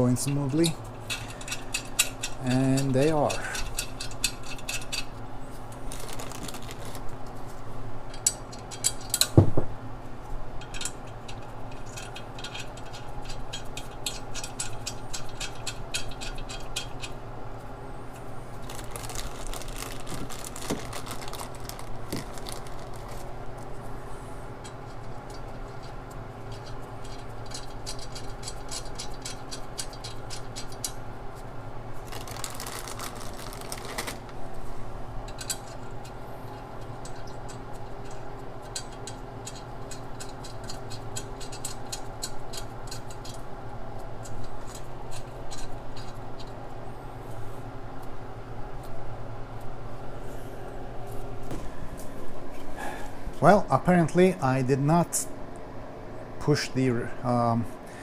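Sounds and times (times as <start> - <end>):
hand ratchet clicking: 0.3 - 5.1, 10.6 - 17.1.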